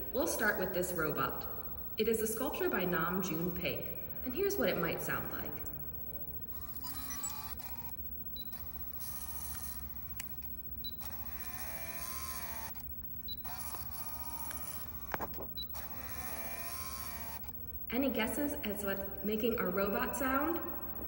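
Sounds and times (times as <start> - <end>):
zoom lens motor whirring: 6.4 - 17.8
camera beeps: 6.5 - 16.5.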